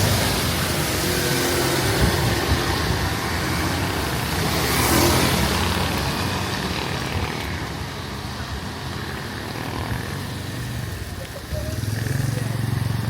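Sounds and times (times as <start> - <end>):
street noise: 0.0 - 13.0.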